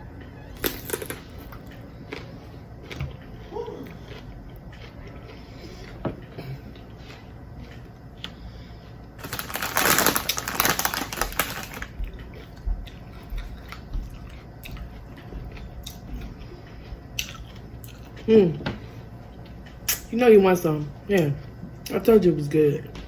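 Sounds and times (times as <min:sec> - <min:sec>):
crunchy chips crackling: 0:00.6 - 0:03.0, 0:09.2 - 0:13.8.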